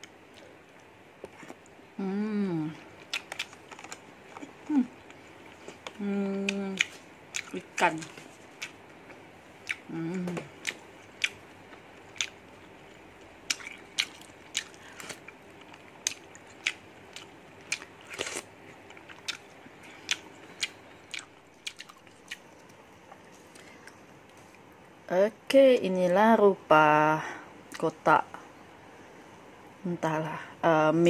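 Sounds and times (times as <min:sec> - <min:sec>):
person chewing food: 0:00.0 - 0:01.8, 0:02.7 - 0:24.6
voice humming: 0:02.0 - 0:02.8, 0:04.6 - 0:05.0, 0:05.9 - 0:06.9, 0:09.8 - 0:10.6.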